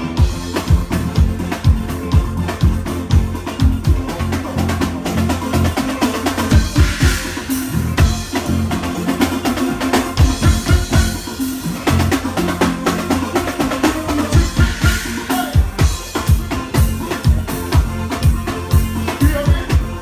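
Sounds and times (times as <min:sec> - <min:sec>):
low bass line: 0:00.0 - 0:13.3
live band playing up-tempo music: 0:00.0 - 0:20.0.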